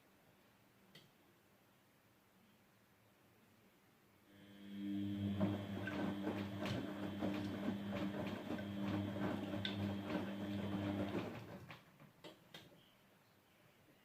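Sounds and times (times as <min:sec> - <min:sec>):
washing machine humming: 0:04.3 - 0:11.9.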